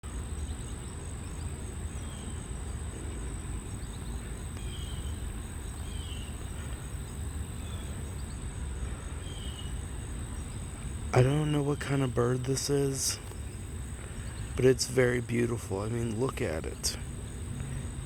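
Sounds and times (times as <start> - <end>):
faint bird chirps: 0.0 - 18.0
high insect drone: 0.0 - 18.0.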